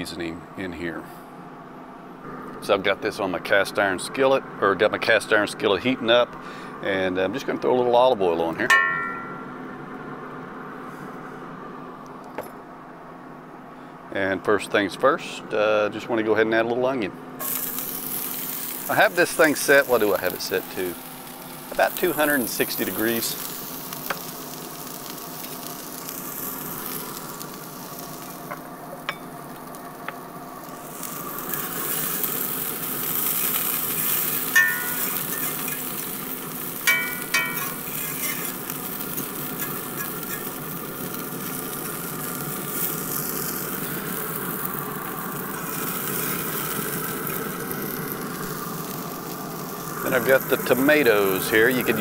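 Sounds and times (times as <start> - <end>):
onion sizzling in oil: 17.4 - 52.0
metal fork scraping a pan: 34.0 - 35.9, 36.9 - 38.6, 39.6 - 40.5.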